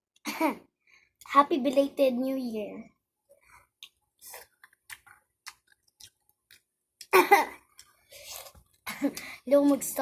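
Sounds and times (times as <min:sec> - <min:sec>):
chewing and mouth clicks: 0:03.3 - 0:09.8.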